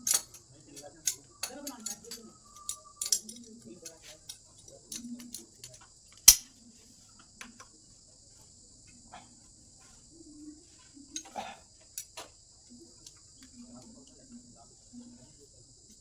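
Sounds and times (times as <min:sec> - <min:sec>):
tools and fittings clicking: 0:00.0 - 0:06.5
steady high-pitched hiss: 0:00.0 - 0:16.0.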